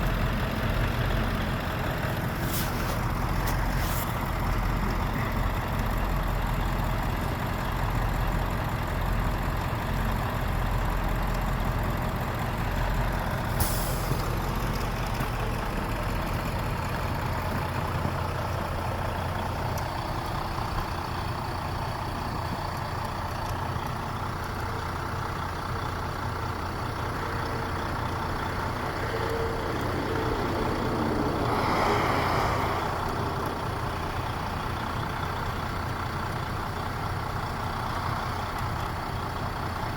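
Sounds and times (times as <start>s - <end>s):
truck engine idling: 0.0s - 39.9s
air hiss: 13.6s - 14.2s.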